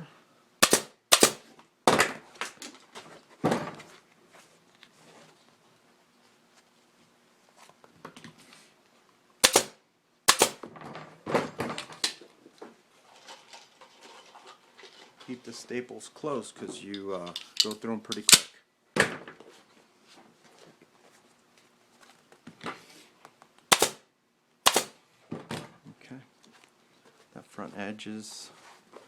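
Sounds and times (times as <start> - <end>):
staple gun firing: 0.6 - 1.5, 9.4 - 10.6, 23.7 - 24.0, 24.7 - 25.0.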